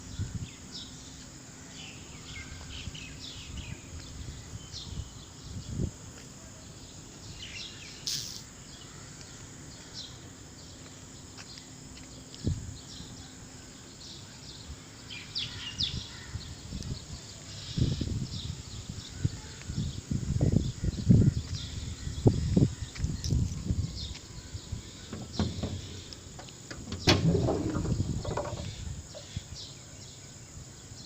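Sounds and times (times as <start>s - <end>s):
steady background noise: 0.0s - 31.0s
birds chirping: 6.6s - 31.0s
sharp click: 8.1s - 8.5s
dull thumps: 25.0s - 29.3s.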